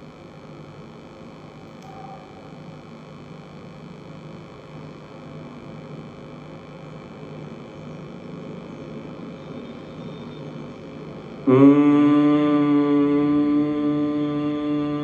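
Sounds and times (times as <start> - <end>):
person humming: 11.4 - 15.0.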